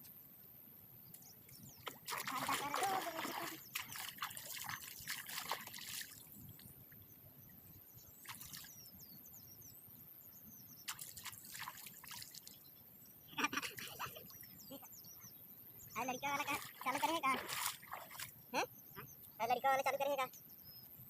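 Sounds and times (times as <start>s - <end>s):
water splashing and dripping: 1.8s - 6.7s, 8.2s - 8.7s, 10.9s - 12.5s, 16.4s - 18.4s.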